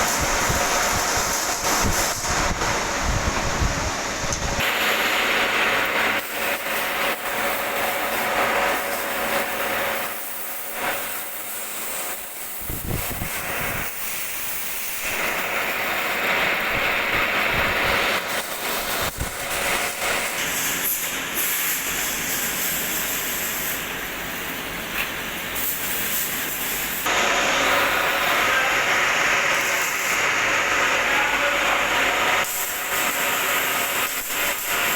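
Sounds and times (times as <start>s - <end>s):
metal lathe cutting: 4.6s - 22.3s, 26.8s - 34.9s.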